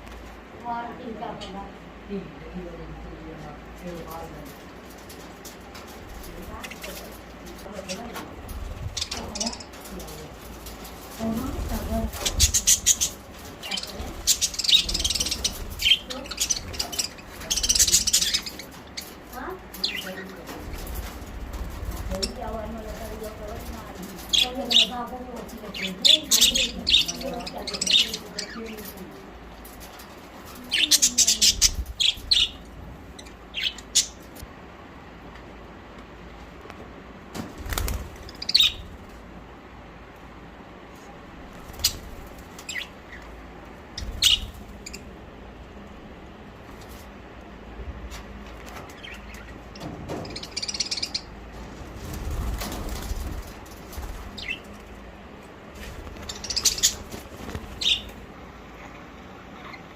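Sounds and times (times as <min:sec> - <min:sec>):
low fluttering rumble: 0:00.0 - 0:59.7
budgerigars chirping: 0:12.1 - 0:19.2, 0:30.6 - 0:34.3, 0:38.3 - 0:38.9, 0:44.0 - 0:45.1, 0:48.9 - 0:51.4, 0:54.3 - 0:54.7, 0:56.2 - 0:57.1, 0:57.7 - 0:58.2.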